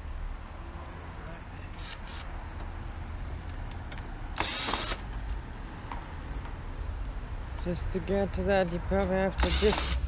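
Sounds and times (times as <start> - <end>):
power screwdriver whirring: 1.8 - 2.3, 4.3 - 5.1, 9.4 - 10.0.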